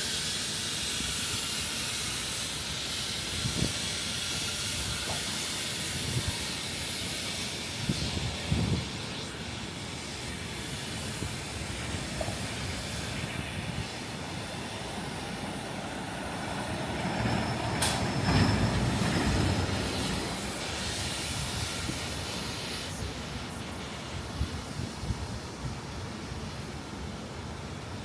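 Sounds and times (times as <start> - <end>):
traffic hiss: 0.0 - 28.0
sharp click: 17.8 - 18.1.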